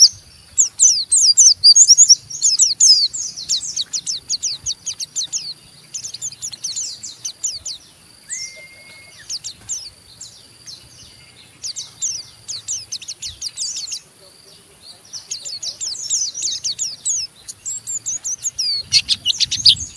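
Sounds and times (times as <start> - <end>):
bird chattering: 0.0 - 19.9
bird whistled note: 8.2 - 9.4.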